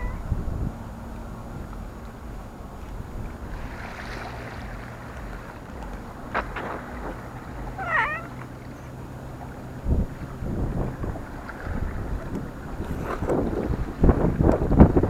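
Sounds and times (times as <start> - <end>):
cat meowing: 0.0 - 0.2, 7.8 - 8.4
low outdoor rumble: 0.0 - 15.0.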